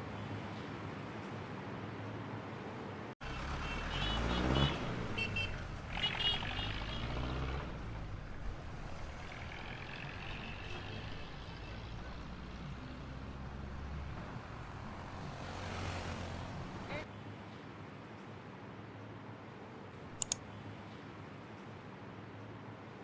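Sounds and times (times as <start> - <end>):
low traffic rumble: 0.0 - 23.0
vehicle passing: 3.2 - 17.0.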